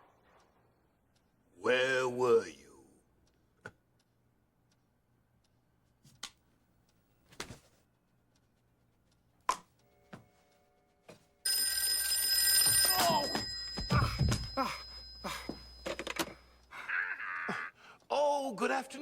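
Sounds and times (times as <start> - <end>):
telephone bell ringing: 11.5 - 16.6.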